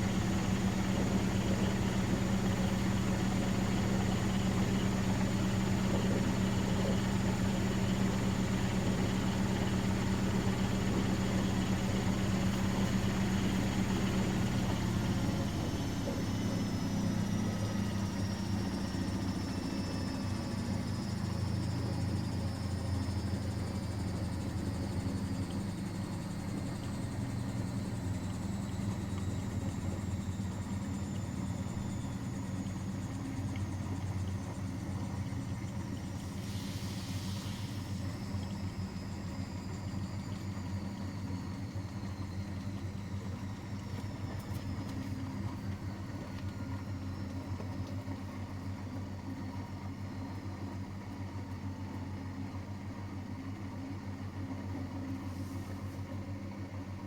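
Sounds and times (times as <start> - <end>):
washing machine drum winding down: 0.0 - 50.0.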